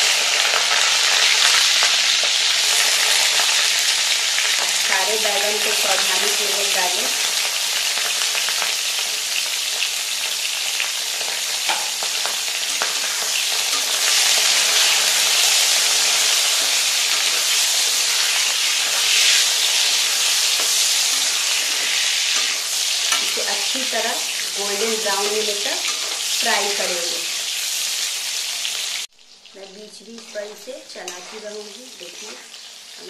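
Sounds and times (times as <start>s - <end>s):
vegetables sizzling in hot oil: 0.0s - 33.0s
spatula stirring: 17.3s - 23.5s, 25.8s - 26.4s.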